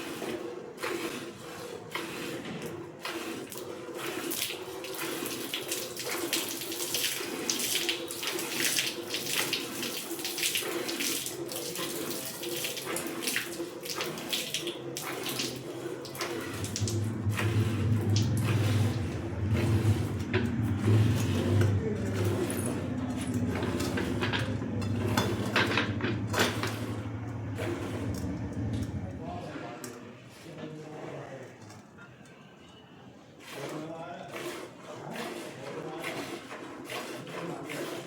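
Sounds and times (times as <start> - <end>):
milk squirting into a bucket: 0.0 - 28.4, 33.4 - 38.0
low engine-like hum: 16.6 - 29.6.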